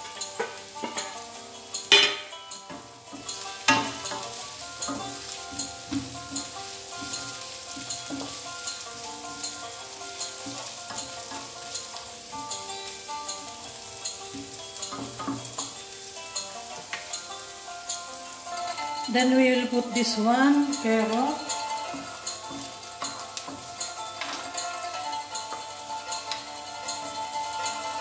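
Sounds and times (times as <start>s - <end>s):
vegetables sizzling in oil: 0.0s - 28.0s
wooden spatula stirring: 1.8s - 28.0s.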